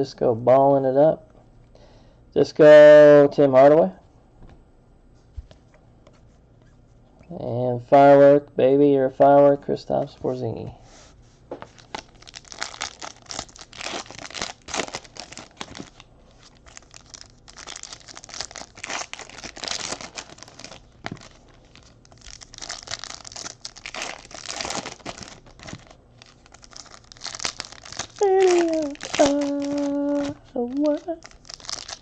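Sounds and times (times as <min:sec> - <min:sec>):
wrappers crinkling and tearing: 0:11.6 - 0:32.0.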